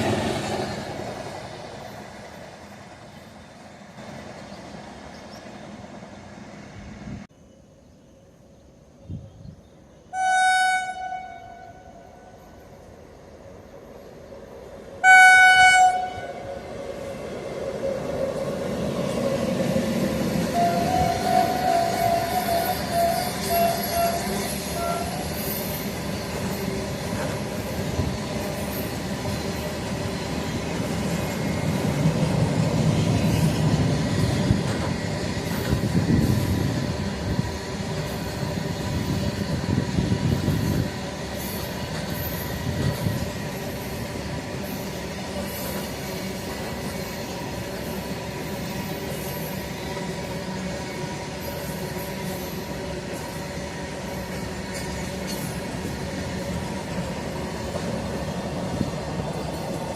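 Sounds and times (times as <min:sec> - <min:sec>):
train running on track: 0:00.0 - 0:59.9.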